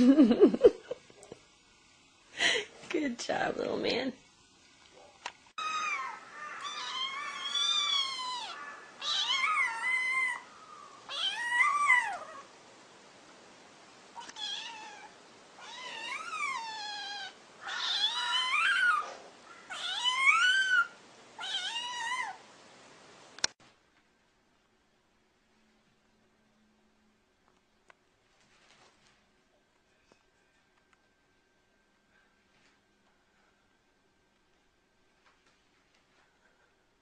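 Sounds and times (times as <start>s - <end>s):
cat meowing: 5.6s - 10.5s, 11.1s - 12.5s, 14.2s - 19.0s, 19.6s - 22.4s.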